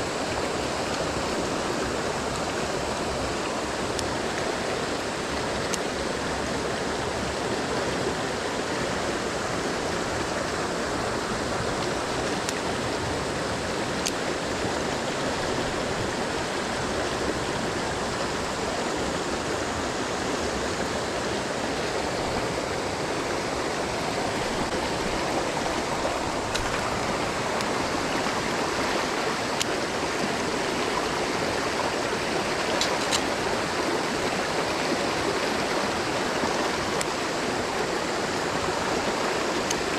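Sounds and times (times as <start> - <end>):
water rushing over rocks: 0.0 - 39.9
faint ticks: 14.0 - 14.2.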